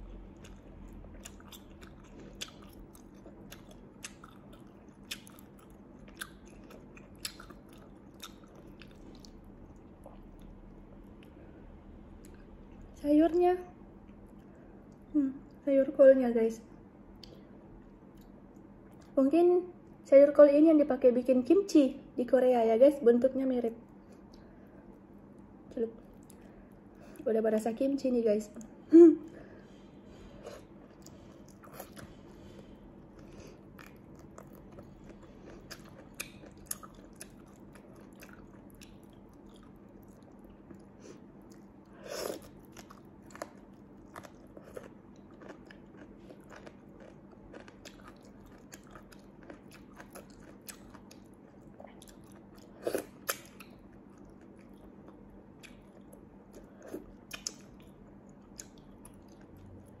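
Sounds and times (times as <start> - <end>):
chewing and biting: 0.3 - 11.3, 30.3 - 60.0.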